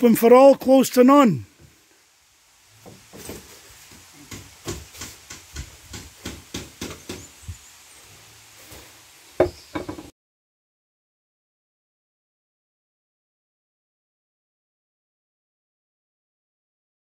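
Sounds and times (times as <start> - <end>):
strikes on wood: 4.2 - 7.3, 9.4 - 10.1.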